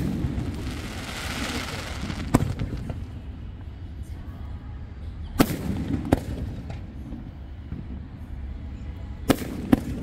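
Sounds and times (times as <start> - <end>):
firework bangs: 0.0 - 3.2.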